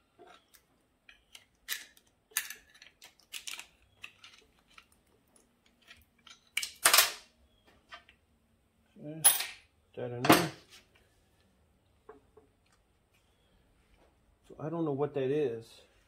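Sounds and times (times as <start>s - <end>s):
metal parts and tools clinking: 0.1s - 7.2s, 9.2s - 9.6s.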